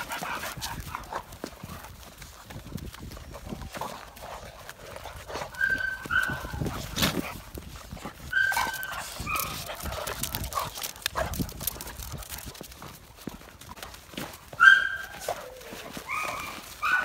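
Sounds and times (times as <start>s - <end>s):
dogs scuffling: 0.0s - 17.0s
dogs whining and yelping: 5.3s - 7.0s, 8.2s - 10.5s, 14.6s - 17.0s
claws clicking on floor: 8.7s - 13.0s.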